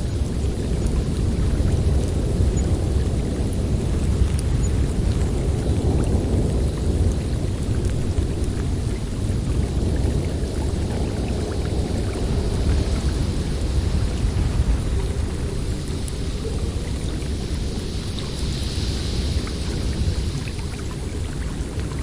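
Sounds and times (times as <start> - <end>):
blizzard wind blowing: 0.0 - 22.0.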